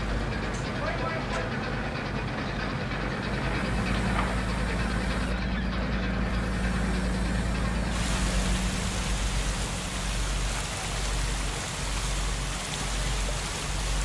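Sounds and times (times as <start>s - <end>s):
low engine hum: 0.0s - 14.0s
hiss of splashing water: 3.1s - 5.4s, 6.3s - 14.0s.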